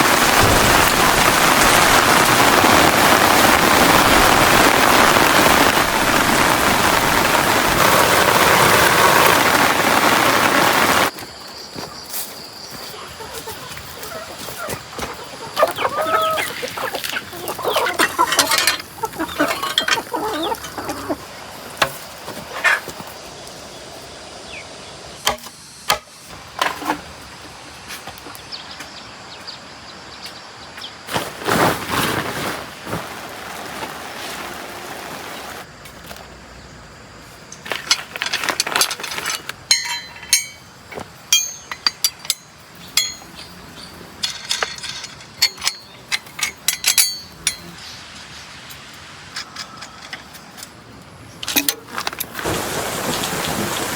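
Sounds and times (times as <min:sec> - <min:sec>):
steady hiss: 0:00.0 - 0:12.9, 0:31.2 - 0:53.9
metal tools clinking on metal: 0:17.4 - 0:21.1, 0:37.5 - 0:47.8, 0:49.3 - 0:50.8, 0:51.4 - 0:52.3.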